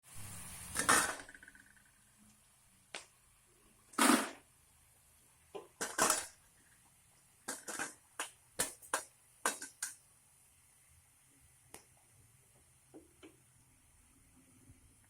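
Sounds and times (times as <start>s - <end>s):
kitchen utensils clattering: 5.8s - 6.3s, 7.5s - 8.0s.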